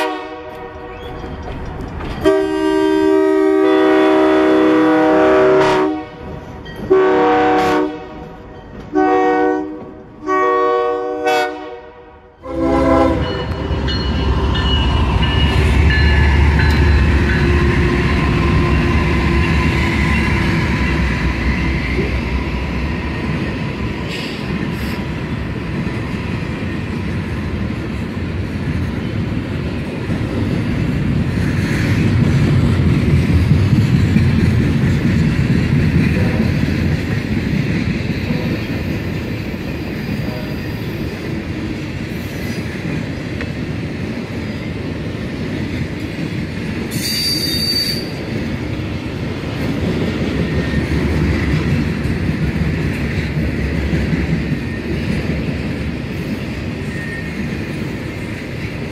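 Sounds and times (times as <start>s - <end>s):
freight train wheels clattering: 0.4s - 3.1s, 13.0s - 58.9s
high squeal: 46.9s - 48.2s.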